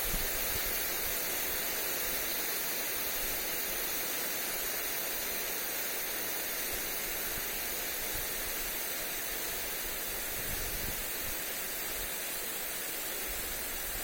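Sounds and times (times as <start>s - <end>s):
sprinkler spraying water: 0.0s - 14.0s
wind rumble on microphone: 10.3s - 11.1s.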